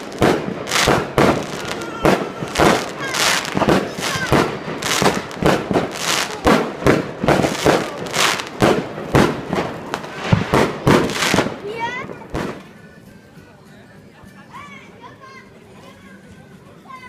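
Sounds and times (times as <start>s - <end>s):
fireworks banging: 0.0s - 12.7s.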